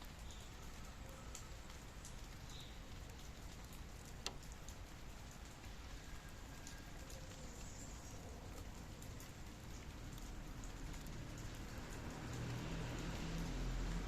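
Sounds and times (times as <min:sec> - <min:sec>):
drops ticking on a surface: 0:00.0 - 0:05.8, 0:08.5 - 0:14.0
steady rain falling: 0:00.0 - 0:14.0.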